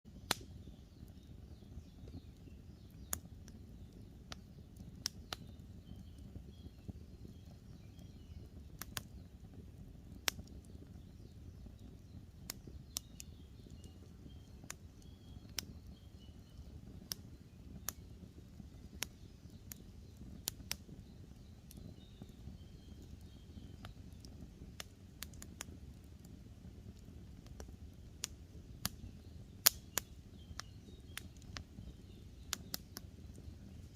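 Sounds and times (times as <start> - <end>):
campfire crackling and popping: 0.1 - 33.9
small birds chirping: 0.1 - 33.9.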